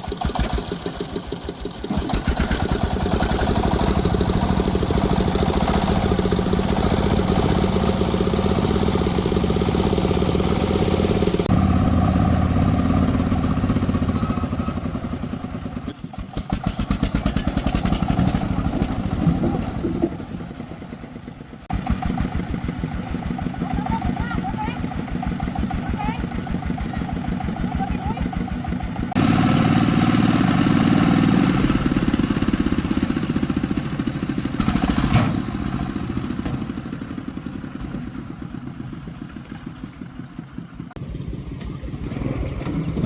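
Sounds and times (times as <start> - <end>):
vehicle engine running: 0.0 - 43.0.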